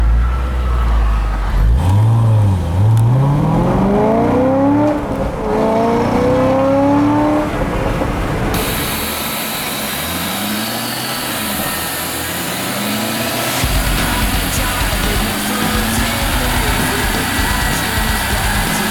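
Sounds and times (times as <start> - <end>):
car engine revving: 0.0 - 18.9.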